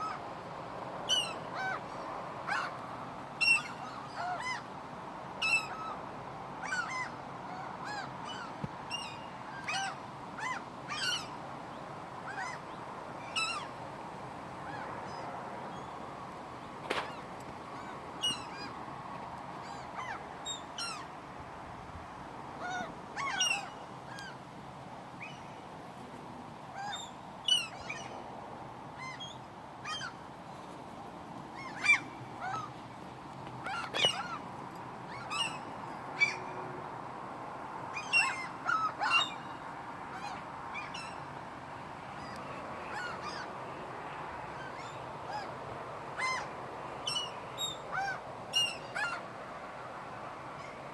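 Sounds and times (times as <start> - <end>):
outdoor background hum: 0.0 - 50.9
seagulls calling: 1.1 - 2.8, 3.4 - 4.7, 5.4 - 6.0, 6.6 - 11.4, 12.2 - 13.7, 16.9 - 18.8, 19.6 - 21.1, 22.6 - 24.4, 29.0 - 30.2, 31.6 - 32.8, 33.6 - 34.5, 35.1 - 36.5, 37.9 - 41.3, 42.1 - 43.6, 44.5 - 45.6, 46.2 - 49.3.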